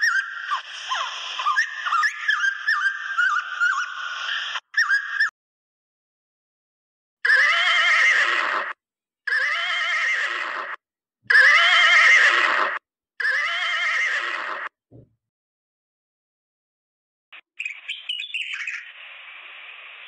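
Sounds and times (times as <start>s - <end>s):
horse whinnying: 7.2s - 14.7s.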